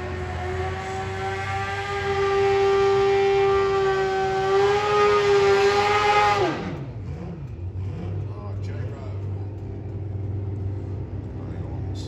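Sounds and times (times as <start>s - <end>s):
motorcycle engine at high revs: 0.0s - 7.3s.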